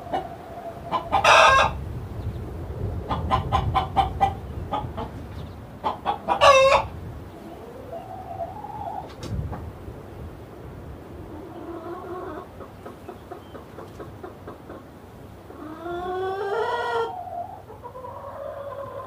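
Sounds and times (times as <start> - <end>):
loud chicken call: 0.0 - 1.8, 5.8 - 9.1, 15.5 - 19.0
chickens clucking: 0.0 - 10.3, 11.0 - 19.0
rising chicken call: 6.1 - 9.1, 15.5 - 19.0.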